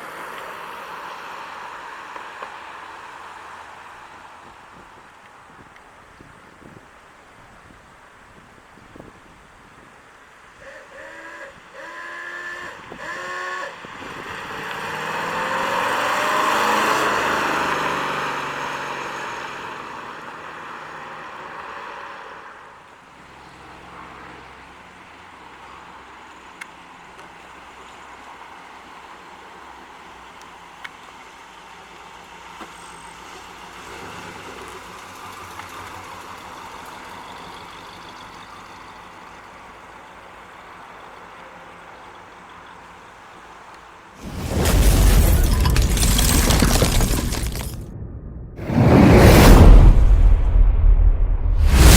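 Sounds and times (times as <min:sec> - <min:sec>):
car engine passing by: 0:10.6 - 0:22.6, 0:44.2 - 0:51.9.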